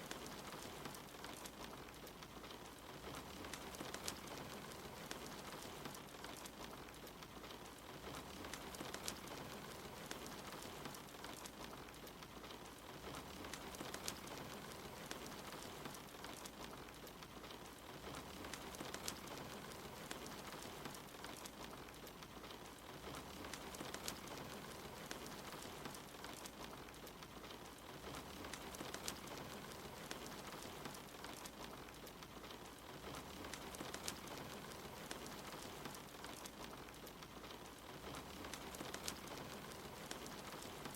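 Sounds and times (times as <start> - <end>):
rain against a window: 0.0 - 40.9
wood fire crackling and popping: 0.0 - 40.9.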